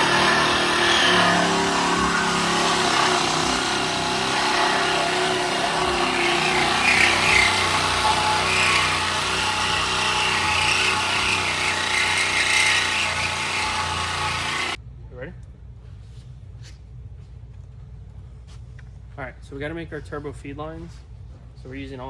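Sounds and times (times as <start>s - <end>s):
reciprocating saw cutting: 0.0s - 14.8s.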